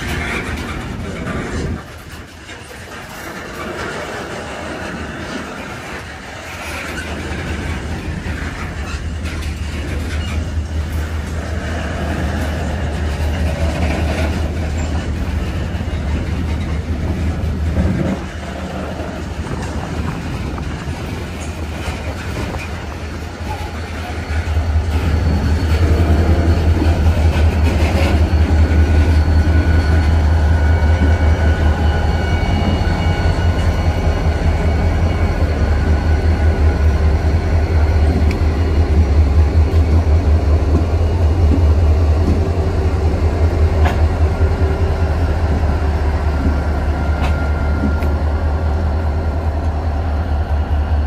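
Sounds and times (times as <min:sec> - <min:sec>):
diesel freight train rumble: 0:00.0 - 0:51.0.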